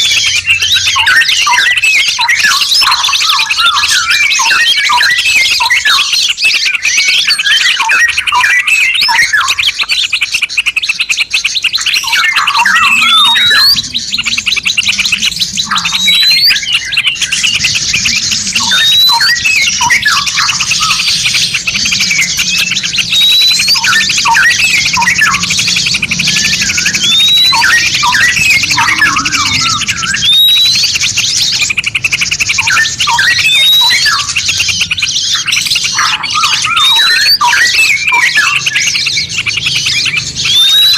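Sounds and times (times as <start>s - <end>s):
songbirds chattering trill: 0.0s - 40.9s
short rising bird whistle: 11.7s - 31.7s, 32.6s - 34.4s, 40.0s - 40.9s.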